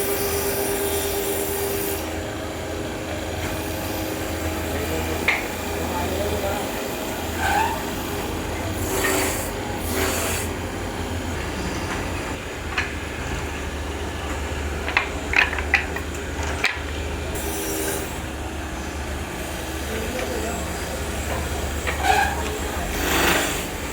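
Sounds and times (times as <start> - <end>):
machine motor humming: 0.0 - 23.9
hissing scraping on wood: 21.4 - 23.8.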